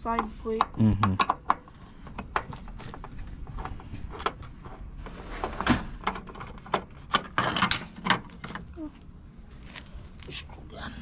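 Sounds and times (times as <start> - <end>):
hand tools clicking and knocking: 0.1 - 4.4.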